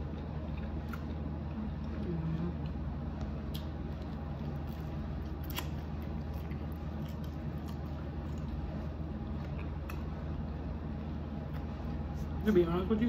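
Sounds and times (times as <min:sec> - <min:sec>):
biting and chewing crunchy food: 0:00.0 - 0:10.3
low background hum: 0:00.0 - 0:13.0.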